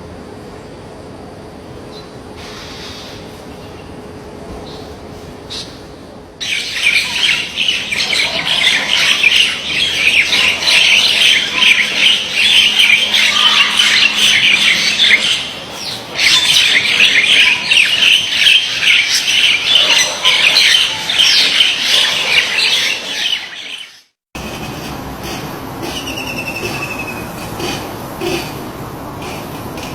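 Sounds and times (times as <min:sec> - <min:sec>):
flock of birds chirping: 0:06.4 - 0:24.0.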